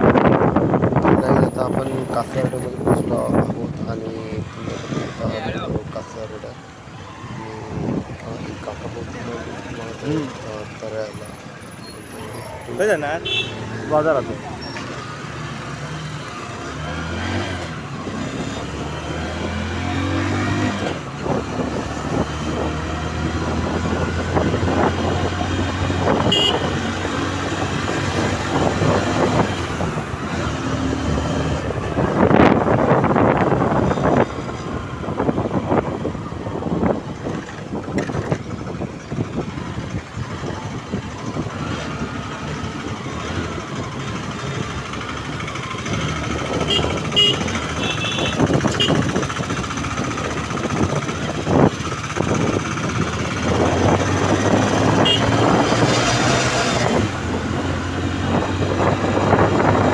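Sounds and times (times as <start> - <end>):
road noise: 0.0 - 59.9
vehicle engine running: 42.2 - 56.4.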